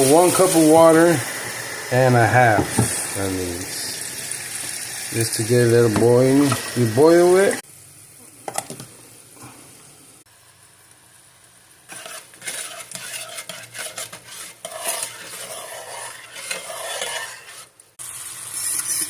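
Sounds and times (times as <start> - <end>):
spoon stirring rice in pot: 11.9 - 17.7.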